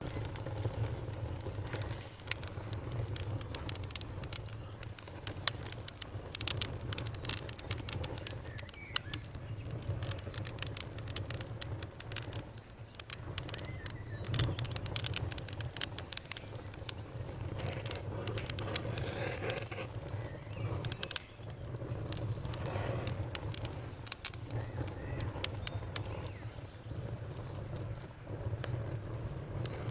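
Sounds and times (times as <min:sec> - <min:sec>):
campfire crackling and popping: 0:00.0 - 0:29.9
frogs calling: 0:23.6 - 0:27.2.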